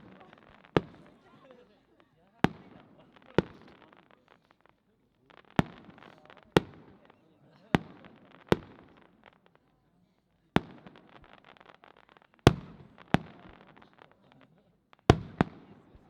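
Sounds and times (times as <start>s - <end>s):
fireworks bangs: 0.0s - 1.8s, 2.4s - 9.5s
fireworks crackling: 0.0s - 16.0s.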